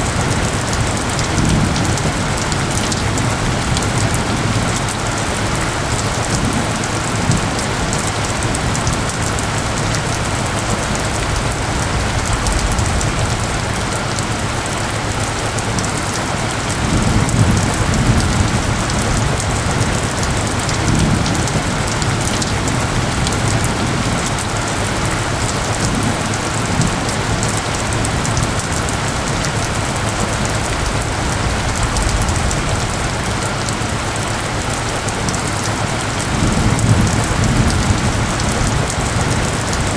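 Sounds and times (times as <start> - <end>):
steady rain patter: 0.0 - 39.9
low rumble: 29.7 - 34.3.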